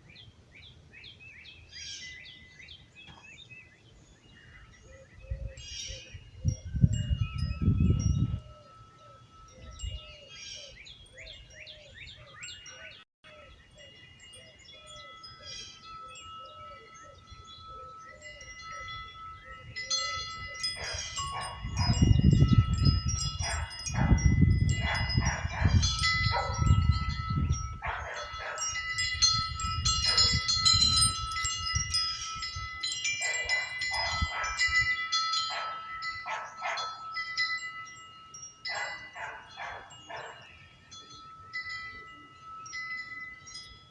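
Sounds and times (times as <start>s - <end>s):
birds chirping faintly: 0.0s - 24.1s, 27.1s - 43.9s
wind chimes ringing: 4.2s - 43.9s
wind gusts on microphone: 5.2s - 8.5s, 18.6s - 37.1s.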